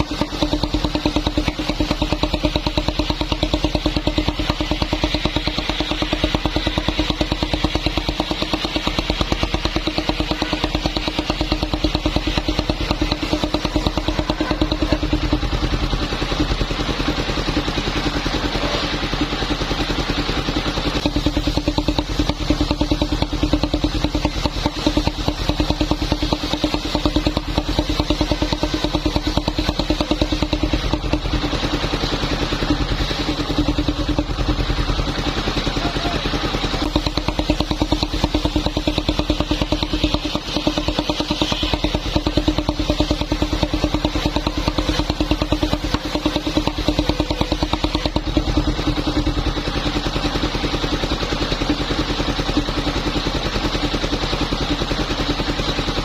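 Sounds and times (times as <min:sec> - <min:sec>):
motorised wood saw engine running: 0:00.0 - 0:56.0.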